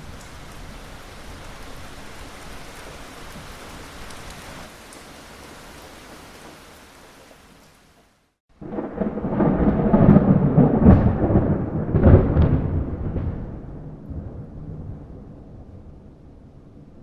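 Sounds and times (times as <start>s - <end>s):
rain hiss: 0.0s - 10.1s
rolling thunderclap: 8.5s - 17.0s.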